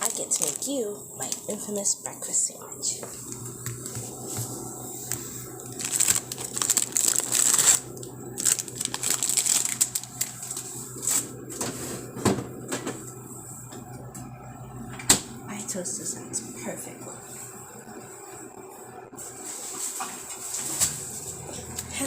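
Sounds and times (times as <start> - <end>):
packaging crinkling and rustling: 0.0 - 1.6, 3.2 - 11.8.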